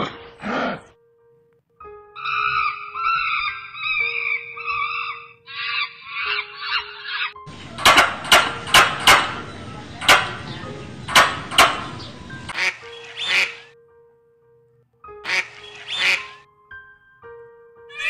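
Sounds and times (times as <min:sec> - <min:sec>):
duck quacking: 0:11.0 - 0:13.7, 0:15.2 - 0:16.4.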